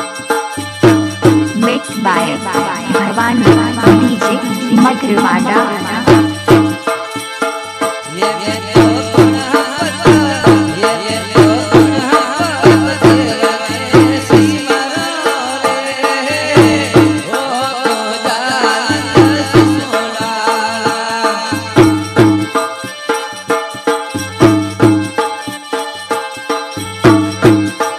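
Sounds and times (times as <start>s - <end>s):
heavy drum beat: 0.8s - 7.0s, 8.1s - 15.2s
ornamented wavering melody: 1.5s - 6.8s.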